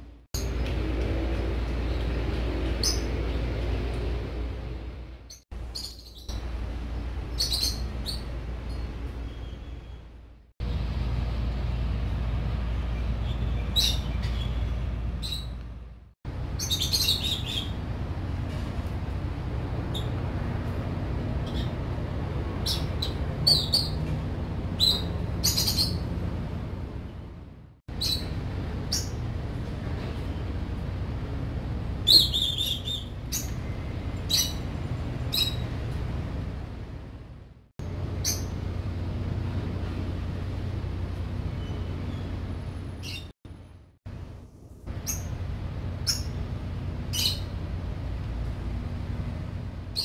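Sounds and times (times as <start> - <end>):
low background hum: 0.0 - 50.0
small birds chirping: 1.7 - 3.8, 5.3 - 10.2, 12.8 - 15.7, 16.5 - 17.8, 22.6 - 24.0, 24.8 - 26.1, 27.9 - 29.3, 32.0 - 35.8, 38.2 - 38.7, 41.5 - 43.3, 44.9 - 47.7.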